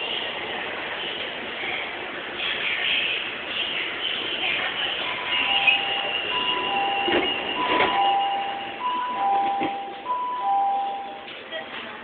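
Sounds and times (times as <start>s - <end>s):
train noise: 0.0s - 12.0s
two-tone electronic warning beeper: 5.1s - 11.3s.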